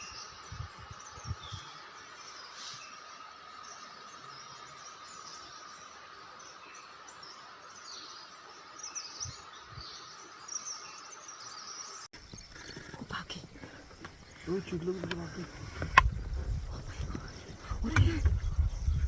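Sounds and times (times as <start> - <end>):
insect drone: 9.9 - 19.0.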